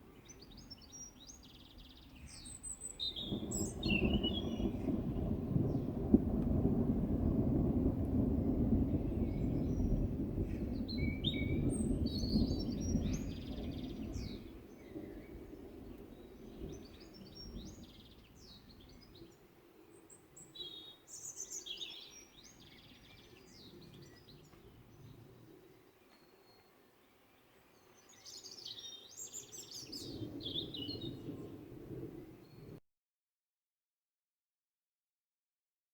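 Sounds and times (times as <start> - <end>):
small birds chirping: 0.0 - 6.0, 8.5 - 32.8
distant thunder rumbling: 2.2 - 19.3, 29.7 - 32.8.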